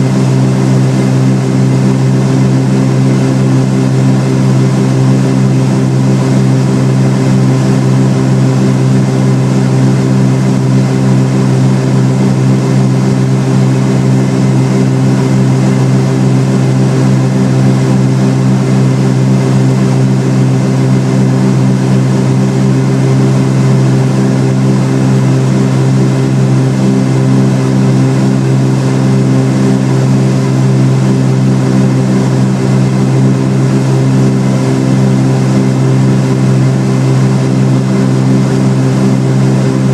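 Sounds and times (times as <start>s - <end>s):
propeller plane engines droning: 0.0s - 39.9s.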